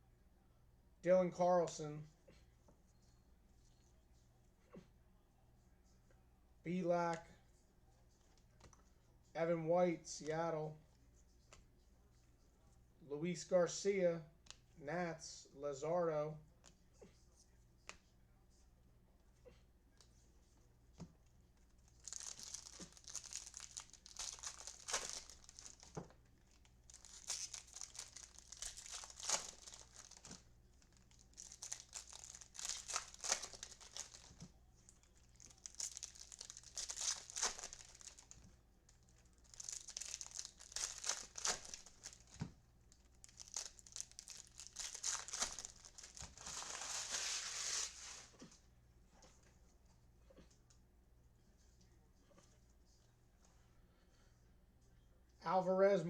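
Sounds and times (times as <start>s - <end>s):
card pack wrappers tearing: 21.9s - 26.0s, 26.6s - 34.4s, 35.1s - 38.4s, 39.4s - 42.4s, 43.2s - 48.2s.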